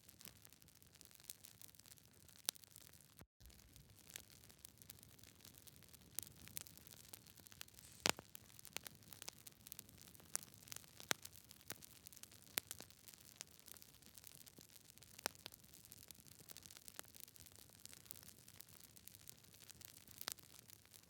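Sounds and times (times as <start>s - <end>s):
wood fire crackling: 0.2s - 21.0s
faint hiss: 7.8s - 8.2s.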